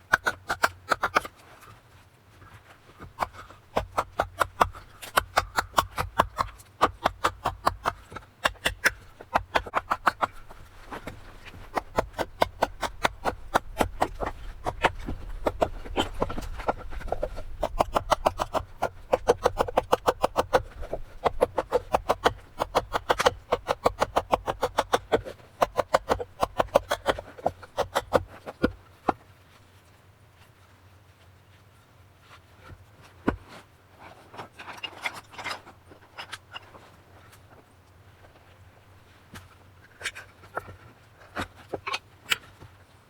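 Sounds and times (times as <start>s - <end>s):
rapid sharp knocks: 3.2s - 10.6s, 11.7s - 28.2s.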